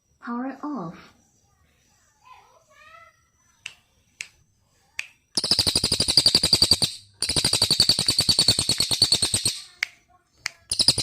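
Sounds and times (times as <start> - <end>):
songbird trilling: 5.4 - 9.8, 10.6 - 11.0.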